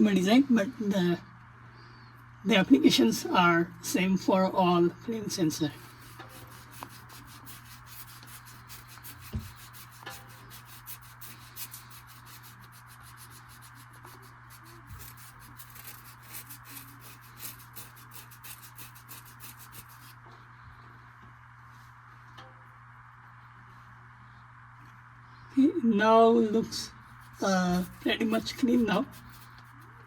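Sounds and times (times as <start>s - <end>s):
sandpaper scratching metal rod: 5.6s - 20.2s, 27.2s - 30.0s.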